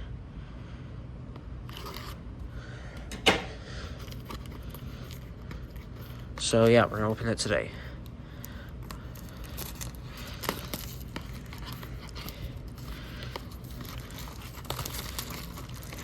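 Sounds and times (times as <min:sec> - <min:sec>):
packaging crinkling and tearing: 0:01.6 - 0:02.2, 0:03.9 - 0:07.0, 0:08.3 - 0:16.0.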